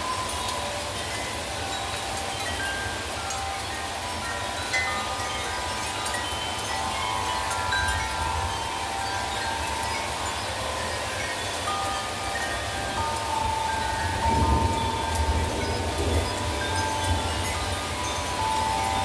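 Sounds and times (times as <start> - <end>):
wind and rain rushing: 0.0 - 19.0
wind chimes ringing: 0.0 - 19.0
wind rumble on microphone: 12.7 - 19.0.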